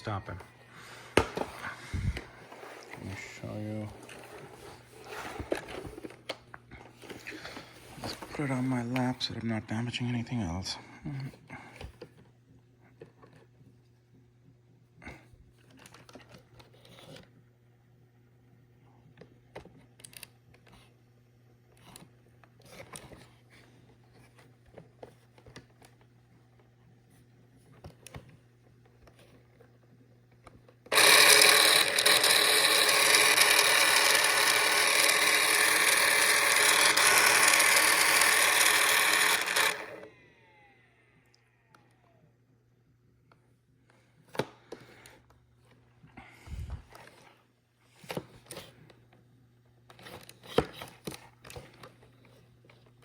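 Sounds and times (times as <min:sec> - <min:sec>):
robot vacuum motor rushing: 0:30.9 - 0:40.8.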